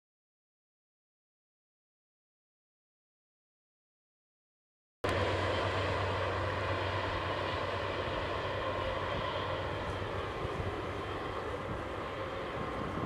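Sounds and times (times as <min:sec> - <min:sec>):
trains rumbling and humming: 0:05.0 - 0:13.0.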